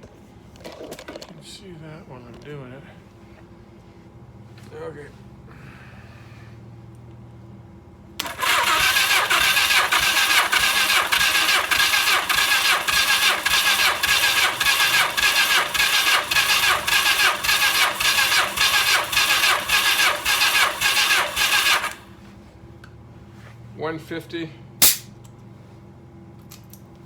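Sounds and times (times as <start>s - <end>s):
electric starter cranking engine: 8.2s - 22.2s.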